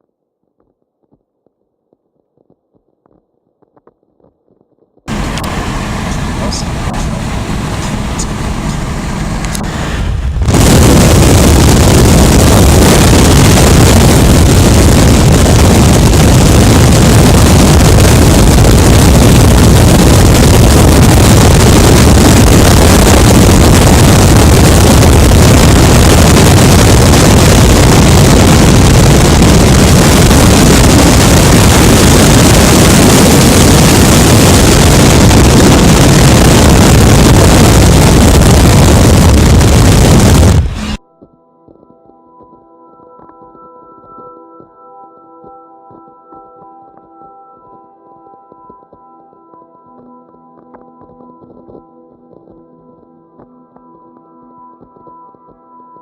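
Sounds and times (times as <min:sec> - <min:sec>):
wind buffeting microphone: 0:05.0 - 0:41.0.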